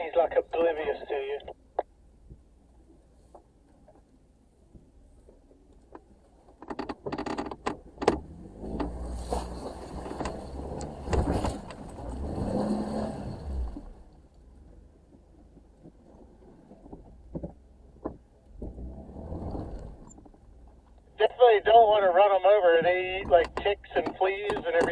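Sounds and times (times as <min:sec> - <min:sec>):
knocks and rattles: 0:09.7 - 0:12.0.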